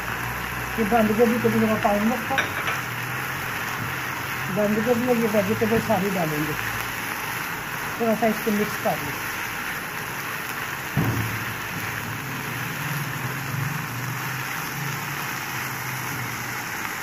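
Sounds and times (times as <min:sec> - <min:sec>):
food sizzling in frying pan: 0:00.0 - 0:17.0
knock: 0:11.0 - 0:11.4.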